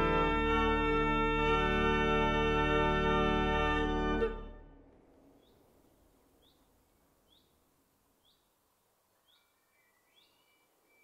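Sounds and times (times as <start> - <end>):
organ reverberation: 0.0 - 5.6
faint bird chirping: 5.2 - 11.0.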